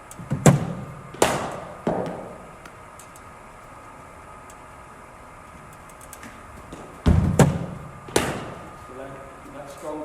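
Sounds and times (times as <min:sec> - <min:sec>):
faint steady hum: 0:00.0 - 0:10.0
sharp echoing knock: 0:07.0 - 0:08.6.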